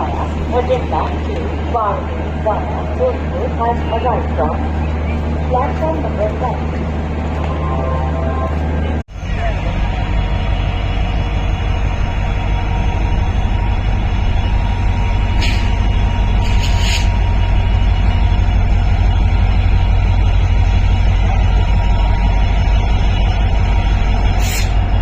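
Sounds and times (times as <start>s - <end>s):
locomotive engine rumbling: 0.0s - 25.0s
air hissing: 15.4s - 15.7s, 16.4s - 17.2s, 24.4s - 24.8s.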